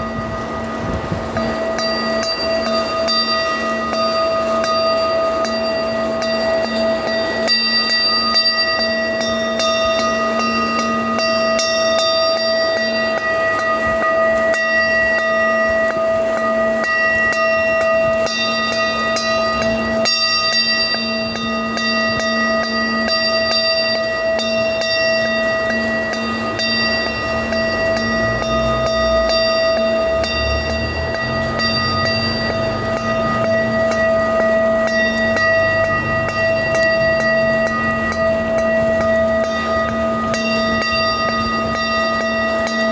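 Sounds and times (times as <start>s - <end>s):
rain-like patter with ticks: 0.0s - 42.9s
ringing bell-like tones: 0.0s - 42.9s.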